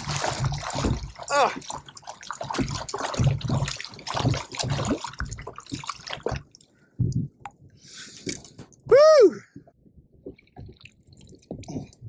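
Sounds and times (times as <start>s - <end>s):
water splashing and dripping: 0.0s - 7.2s, 10.2s - 12.0s.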